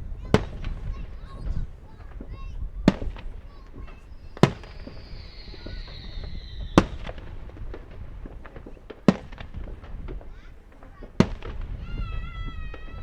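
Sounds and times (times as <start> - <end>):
firework pops and crackling: 0.0 - 13.0
loud firework bangs: 0.0 - 13.0
faint falling whistle: 4.2 - 7.1.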